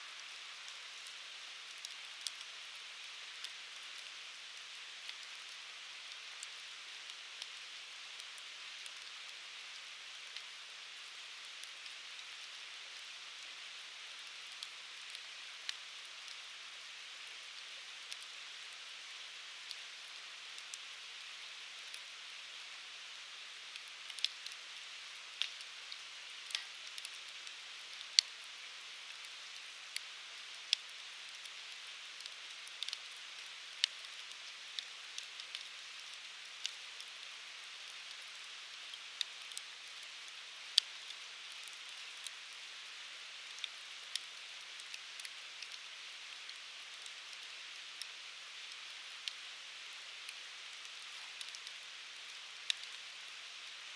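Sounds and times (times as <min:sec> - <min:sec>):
firewood burning with pops: 0:26.4 - 0:27.2, 0:50.3 - 0:53.0.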